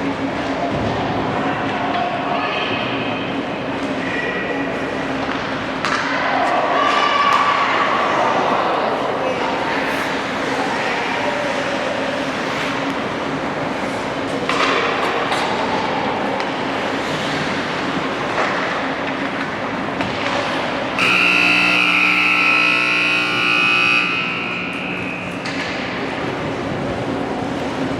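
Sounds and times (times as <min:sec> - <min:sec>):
horn long blast: 0:20.9 - 0:26.0.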